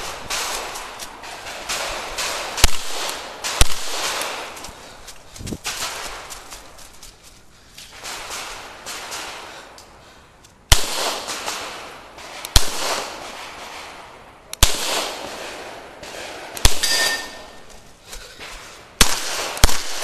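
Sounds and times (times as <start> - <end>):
pistol shots with echo: 0.0 - 4.6, 10.7 - 17.7, 19.0 - 20.0.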